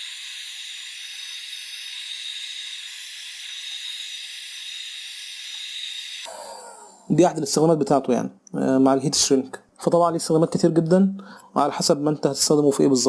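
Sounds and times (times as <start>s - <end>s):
heat gun blowing air with whine: 0.0s - 6.9s.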